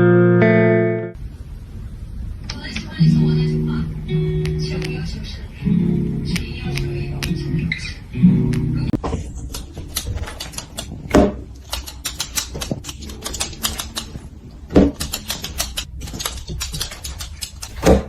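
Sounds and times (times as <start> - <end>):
rapid clicking and tapping: 9.4 - 14.2, 14.8 - 18.0.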